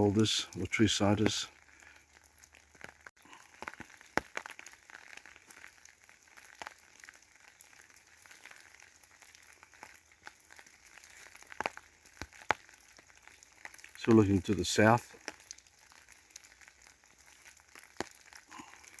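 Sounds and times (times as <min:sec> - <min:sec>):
crackles and clicks: 0:00.0 - 0:19.0
low hiss: 0:14.0 - 0:15.3.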